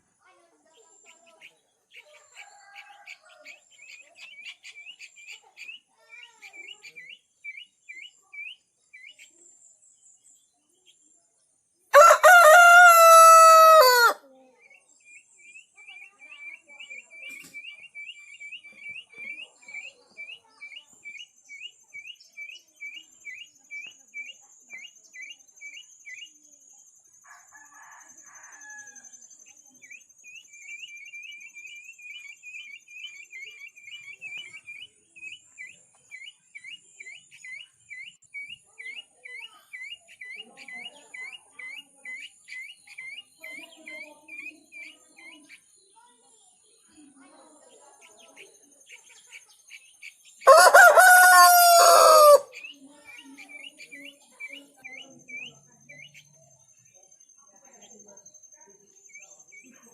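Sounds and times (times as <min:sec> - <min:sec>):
rooster crowing: 0:11.9 - 0:14.2, 0:50.5 - 0:52.5.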